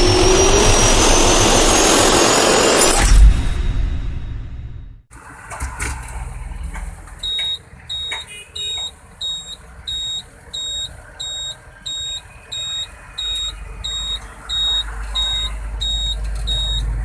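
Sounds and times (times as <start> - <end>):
engine low rumble: 0.0 - 5.1, 9.2 - 17.0
truck reversing alarm beeping: 7.2 - 17.0.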